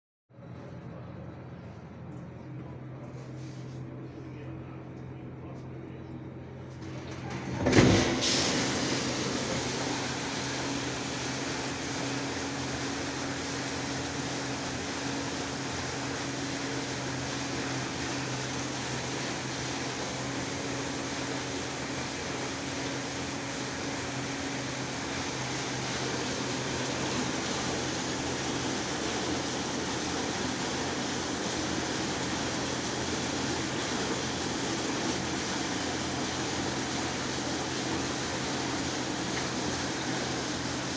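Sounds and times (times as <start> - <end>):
dishwasher pump humming: 6.3 - 40.9
dishwasher starting jolt: 6.8 - 11.8
water spraying and splashing: 8.0 - 40.9.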